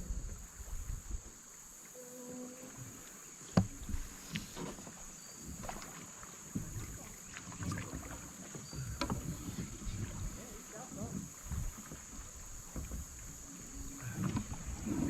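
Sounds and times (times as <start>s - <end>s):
high-pitched hiss: 0.0s - 6.2s
knocks and clatter on kayak: 3.5s - 15.0s.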